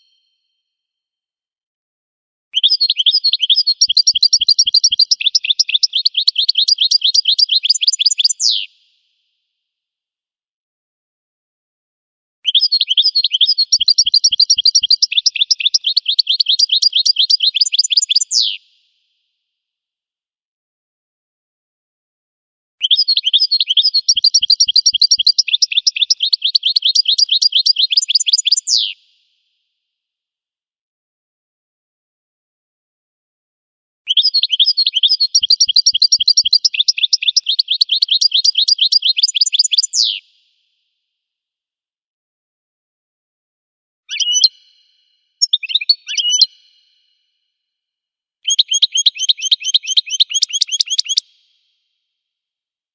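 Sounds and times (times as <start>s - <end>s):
bird twittering song: 2.6s - 8.6s, 12.5s - 18.6s, 22.8s - 28.9s, 34.1s - 40.1s, 44.1s - 47.1s, 48.5s - 51.2s
goldfinch chirping: 2.7s - 8.6s, 12.6s - 18.5s, 22.9s - 28.9s, 34.2s - 40.1s, 45.4s - 46.5s, 48.5s - 51.2s.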